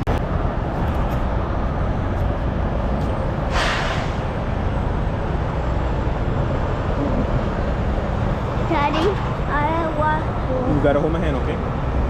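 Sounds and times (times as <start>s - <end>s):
diesel truck engines idling: 0.0s - 12.0s
air hissing: 3.4s - 4.4s.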